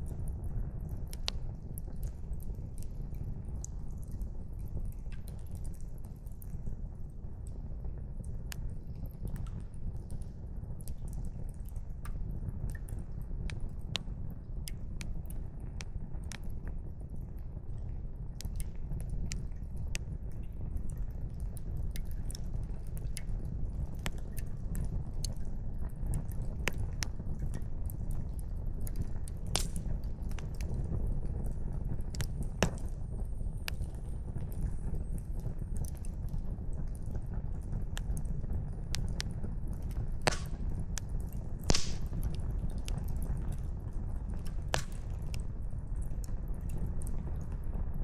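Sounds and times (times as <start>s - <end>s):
burning logs popping: 0.0s - 47.9s
campfire crackling: 8.2s - 47.7s
fire hissing: 40.2s - 40.7s, 41.7s - 42.2s.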